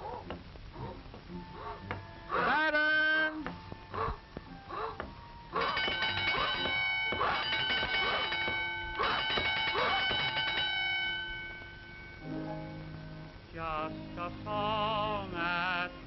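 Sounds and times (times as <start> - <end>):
bell ringing: 5.6 - 12.9
low held musical chord: 8.0 - 16.0.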